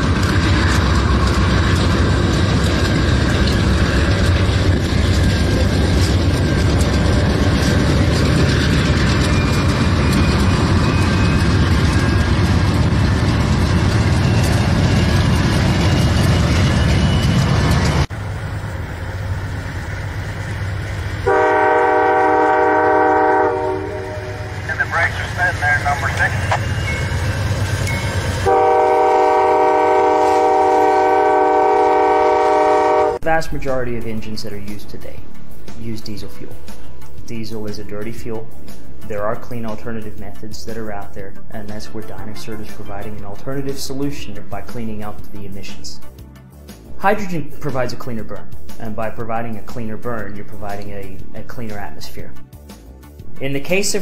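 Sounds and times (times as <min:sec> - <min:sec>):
diesel locomotive engine rumbling: 0:00.0 - 0:54.0
locomotive air horn blast: 0:21.2 - 0:24.8, 0:28.4 - 0:33.2.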